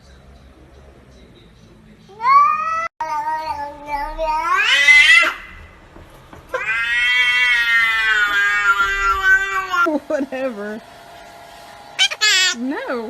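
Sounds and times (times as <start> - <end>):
cat meowing: 2.1 - 5.7, 6.5 - 9.9.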